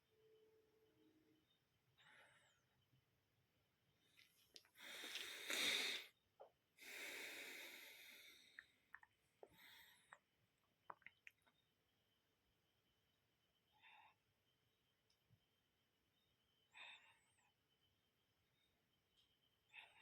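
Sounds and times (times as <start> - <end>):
person breathing loudly: 4.8 - 6.1, 6.8 - 8.6.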